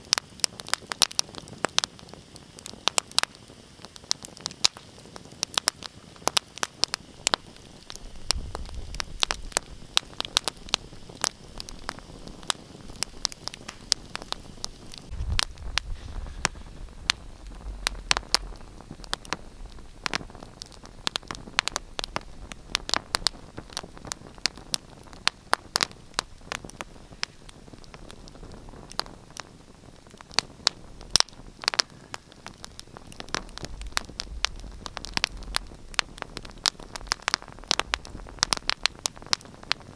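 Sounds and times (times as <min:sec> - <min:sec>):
wood fire crackling: 0:00.0 - 0:39.9
low rumble: 0:13.9 - 0:24.1.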